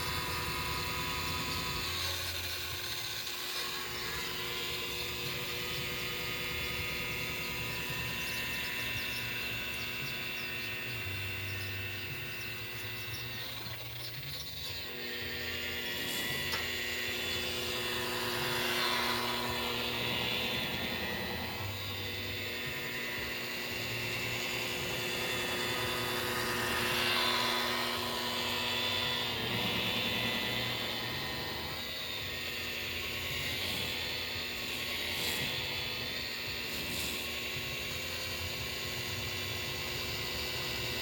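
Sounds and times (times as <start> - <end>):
electric polishing buffer whine: 0.0 - 41.0.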